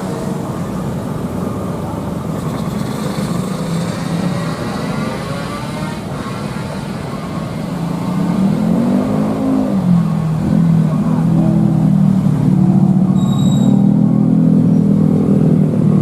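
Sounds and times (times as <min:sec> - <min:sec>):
high beep: 0:13.2 - 0:14.0.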